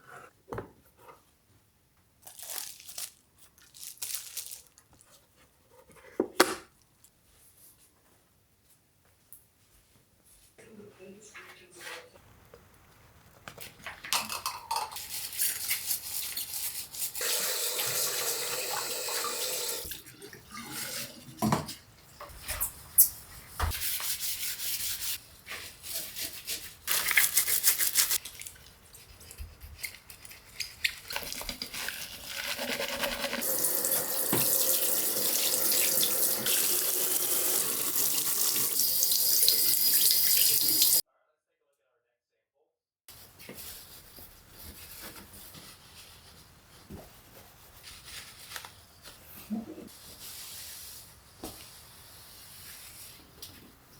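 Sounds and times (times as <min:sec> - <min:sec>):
tap water running into sink: 0:17.2 - 0:21.7, 0:33.1 - 0:41.0.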